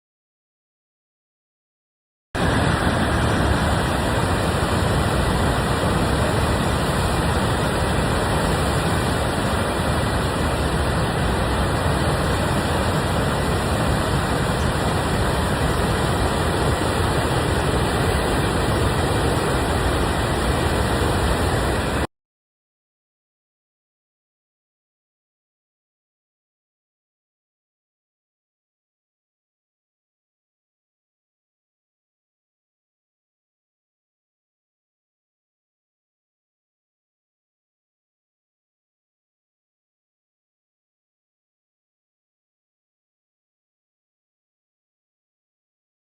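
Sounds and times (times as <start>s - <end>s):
roar of rushing floodwater: 2.4s - 22.1s.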